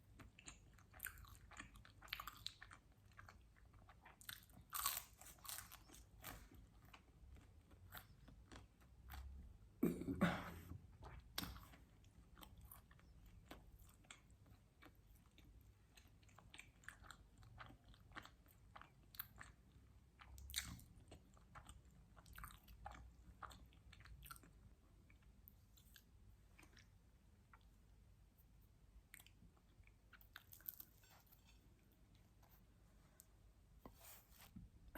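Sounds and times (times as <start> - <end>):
chewing with wet mouth clicks: 0.1 - 5.0, 11.0 - 27.7.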